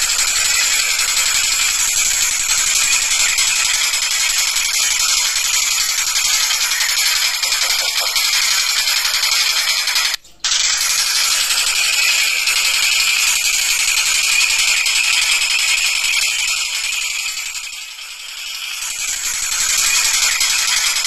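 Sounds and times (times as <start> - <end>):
kingfisher rattling call: 0.0 - 12.9.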